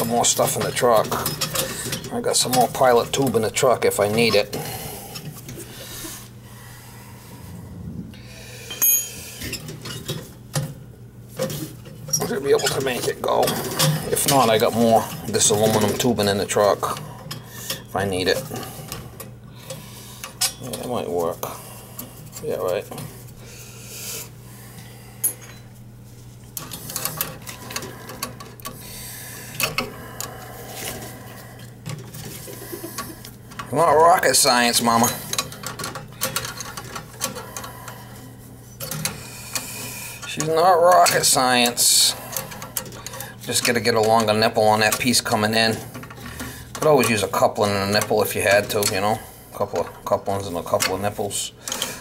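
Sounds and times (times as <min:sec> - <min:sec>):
low steady hum: 0:00.0 - 0:52.0
tools tapping metal fittings: 0:08.7 - 0:10.7, 0:25.2 - 0:25.7, 0:31.6 - 0:37.7, 0:40.3 - 0:50.0.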